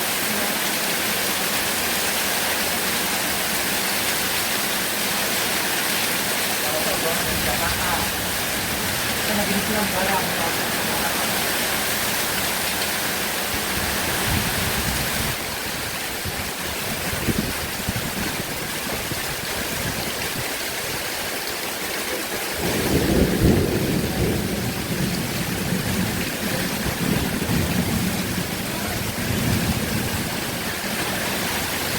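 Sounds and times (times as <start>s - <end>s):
heavy rain: 0.0s - 31.9s
thunder rumbling: 6.8s - 15.6s, 22.6s - 31.9s.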